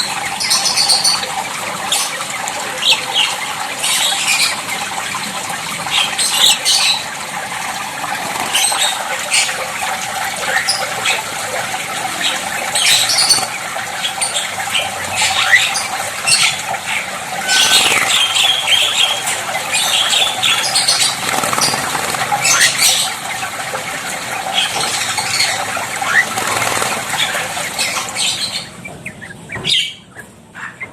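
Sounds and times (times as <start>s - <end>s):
wing flutters in water: 0.0s - 14.7s, 15.4s - 28.7s
water splashing: 0.0s - 30.0s
bird squawks and chirps: 8.4s - 30.9s.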